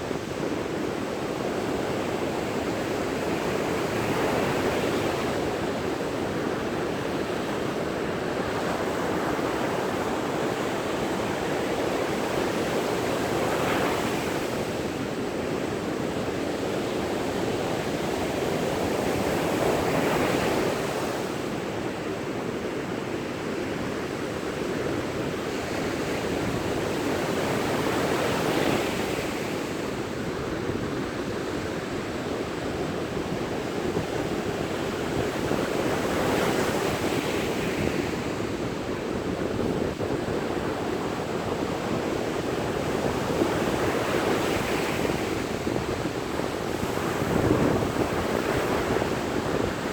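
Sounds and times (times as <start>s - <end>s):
waves breaking on beach: 24.0s - 49.9s.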